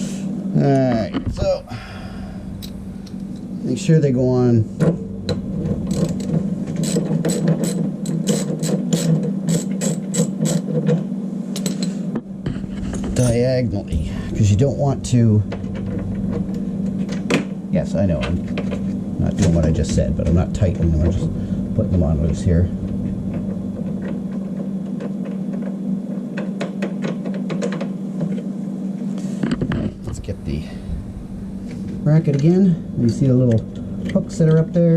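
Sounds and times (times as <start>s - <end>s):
steady low hum: 0.0s - 34.9s
ratchet wrench clicking: 5.9s - 10.6s.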